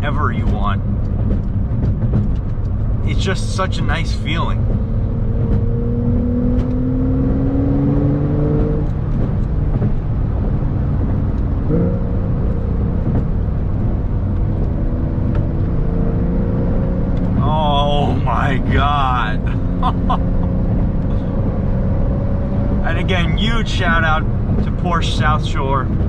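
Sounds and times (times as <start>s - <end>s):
car engine accelerating: 0.0s - 26.0s
road and tyre rumble: 0.0s - 26.0s.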